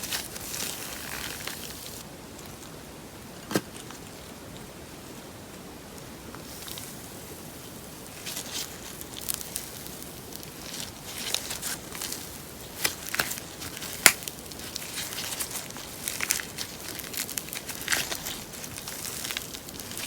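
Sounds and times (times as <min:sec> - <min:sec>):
slime squished by hand: 0:08.2 - 0:20.0.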